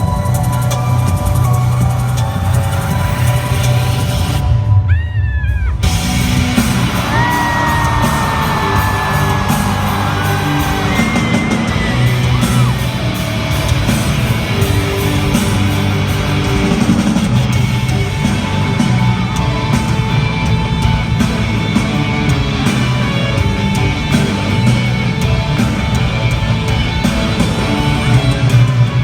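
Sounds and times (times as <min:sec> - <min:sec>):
voices yelling and whooping: 0:04.9 - 0:16.1
rock band with guitar: 0:05.5 - 0:29.0.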